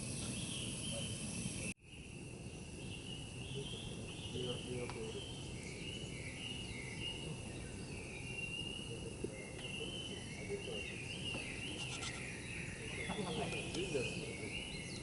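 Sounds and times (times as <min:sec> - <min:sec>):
high-pitched wildlife chorus: 0:00.0 - 0:15.0.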